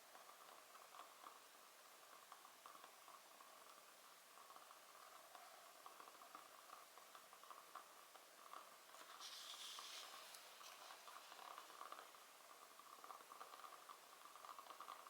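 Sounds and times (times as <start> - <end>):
fire hiss: 9.0 - 11.8.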